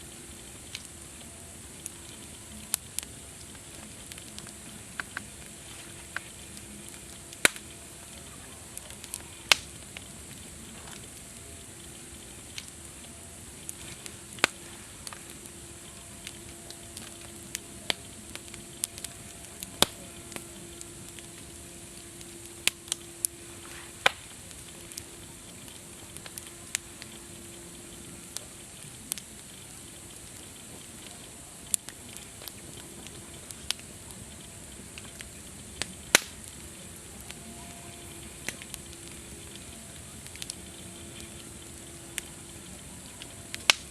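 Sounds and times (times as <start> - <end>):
campfire crackling: 0.0 - 43.9.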